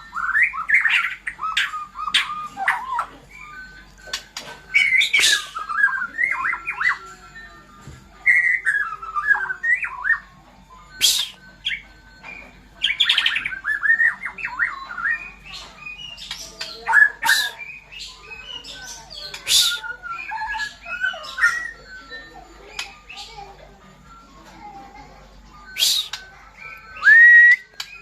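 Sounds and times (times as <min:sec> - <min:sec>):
songbirds whistling phrases: 0:00.0 - 0:22.0, 0:25.5 - 0:28.0
harsh rasping bird squawks: 0:17.0 - 0:17.8.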